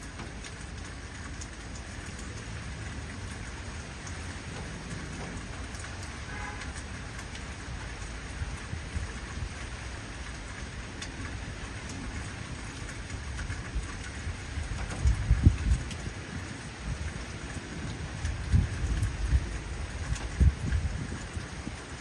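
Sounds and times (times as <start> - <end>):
heavy rain falling: 0.0 - 22.0
raindrops tapping: 0.0 - 22.0
low rumble of thunder: 10.5 - 22.0.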